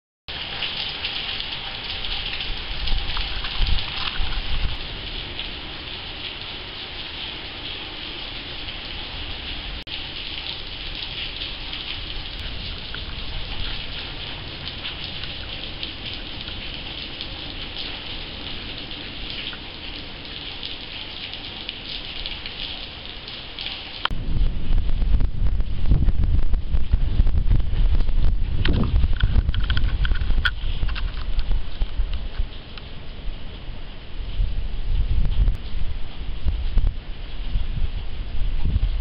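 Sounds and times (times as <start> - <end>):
rain falling: 0.3 - 39.0
low thunder rumble: 9.0 - 17.7, 24.1 - 39.0.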